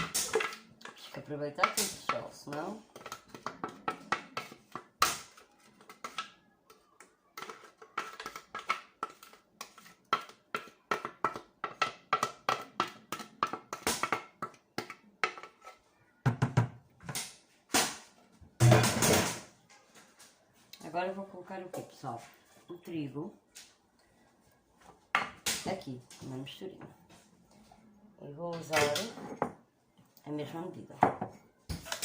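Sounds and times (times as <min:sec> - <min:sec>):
spoon scraping a blender jar: 0:07.4 - 0:11.1.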